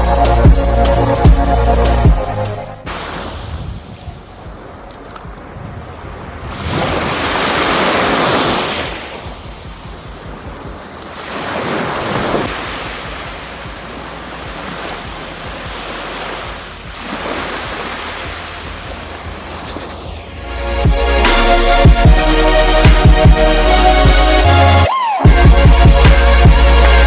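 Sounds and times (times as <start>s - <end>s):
sea waves washing onto shore: 2.9s - 20.8s
wind rumbling on microphone: 2.9s - 21.2s.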